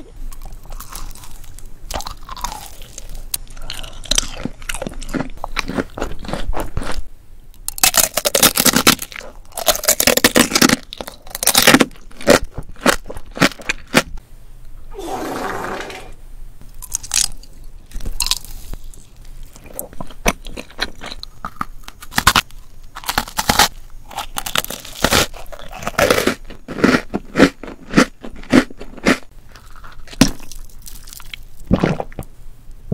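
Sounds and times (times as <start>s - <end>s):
cookie crunching: 0.3s - 7.0s, 7.6s - 14.1s, 16.8s - 32.0s.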